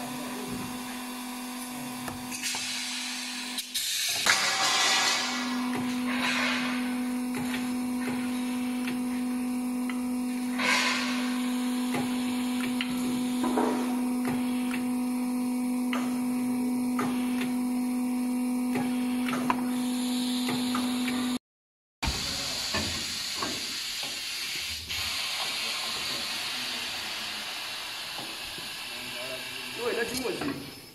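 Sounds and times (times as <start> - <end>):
machine electric hum: 0.0 - 21.4.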